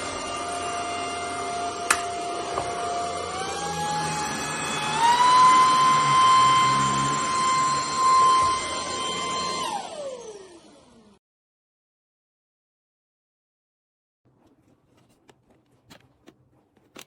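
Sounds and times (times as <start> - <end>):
vacuum cleaner motor whine: 0.0 - 11.2.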